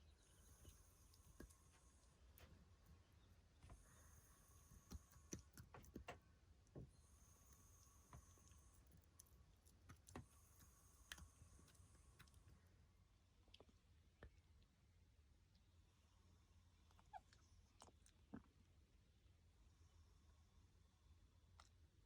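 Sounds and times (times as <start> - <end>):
faint clicks and taps: 4.7 - 6.9.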